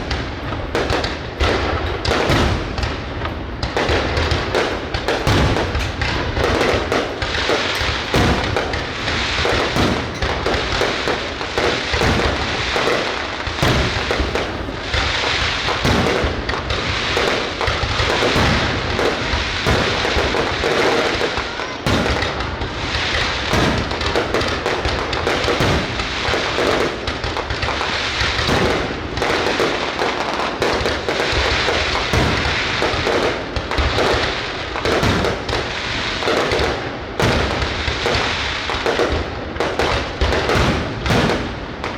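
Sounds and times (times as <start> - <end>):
fireworks bangs: 0.0 - 41.9
fireworks crackling and popping: 0.0 - 41.9.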